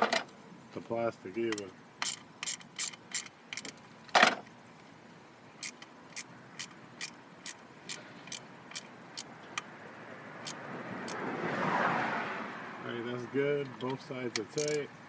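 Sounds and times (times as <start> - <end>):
ratchet clicking: 1.5 - 3.8, 5.6 - 9.7, 10.4 - 11.2, 13.8 - 14.9.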